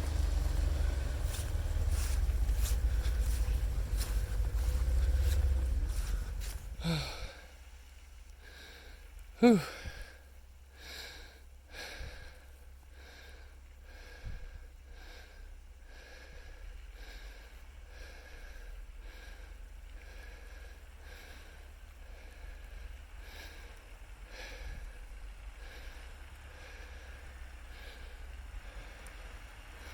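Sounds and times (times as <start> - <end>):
vehicle swishing and rattling: 0.0 - 7.3
low engine rumble: 0.0 - 29.9.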